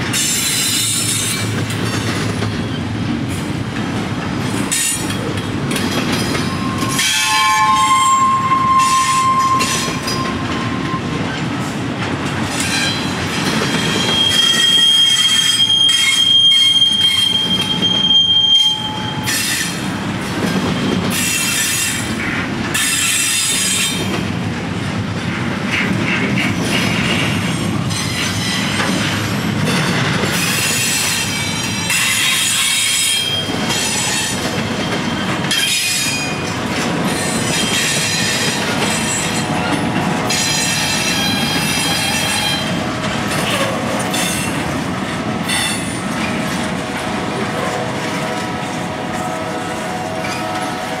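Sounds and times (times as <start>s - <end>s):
freight train wheels rumbling on rail: 0.0s - 51.0s
high-pitched wheel squeal: 6.4s - 11.2s, 13.7s - 19.8s.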